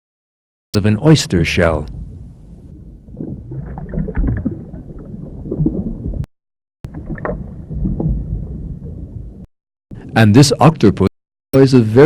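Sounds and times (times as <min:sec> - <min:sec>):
underwater rumbling and gurgling: 0:01.9 - 0:09.5.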